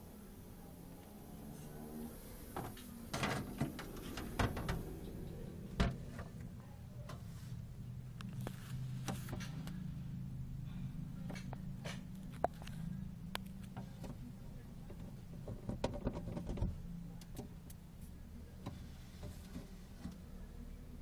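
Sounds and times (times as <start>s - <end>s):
steady low hum: 0.0s - 21.0s
knocks and clicks of handling: 14.9s - 16.8s.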